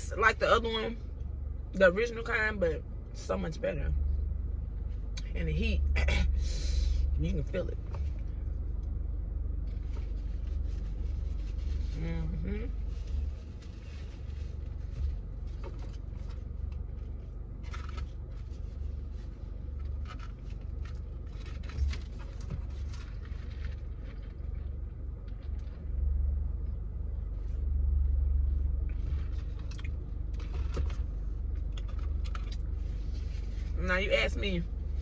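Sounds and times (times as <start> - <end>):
car low rumble: 0.0 - 35.0
crunchy chewing: 28.9 - 33.4.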